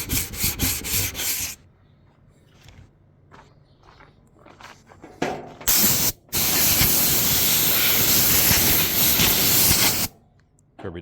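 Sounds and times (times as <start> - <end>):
air blow gun hissing: 5.7 - 10.1.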